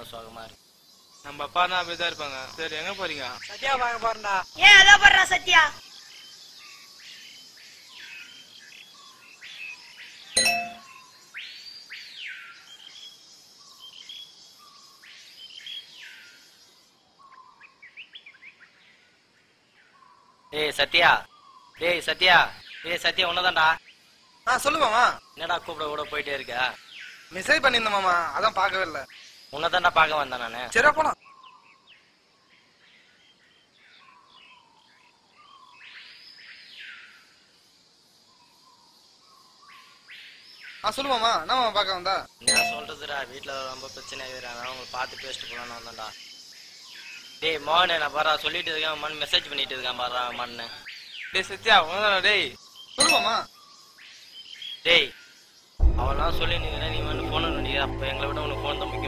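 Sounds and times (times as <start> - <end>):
faint background hiss: 0.0 - 59.0
faint birds chirping: 0.0 - 59.0
short bird chirps: 10.4 - 11.2.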